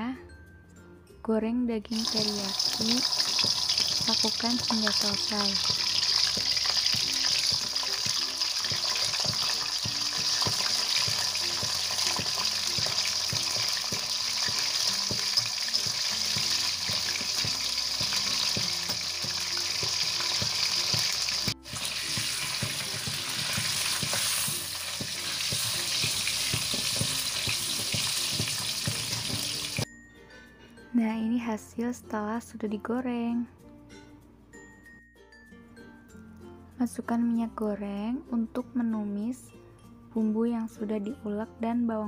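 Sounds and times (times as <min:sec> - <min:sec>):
beef sizzling in hot oil: 0:02.0 - 0:29.9.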